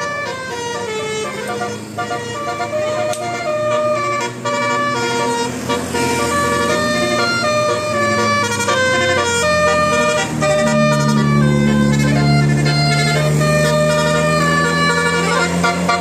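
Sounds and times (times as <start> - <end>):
reedy wind instrument melody: 0.0 - 16.0
low drone: 9.4 - 15.5.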